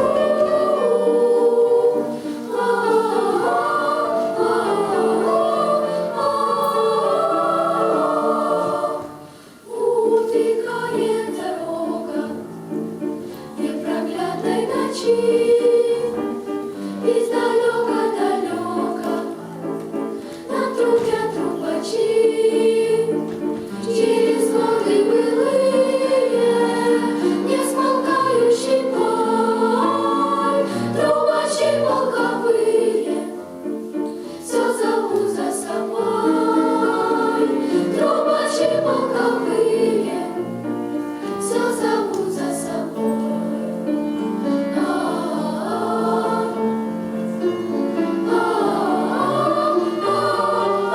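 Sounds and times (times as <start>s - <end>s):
choir singing: 0.0s - 50.9s.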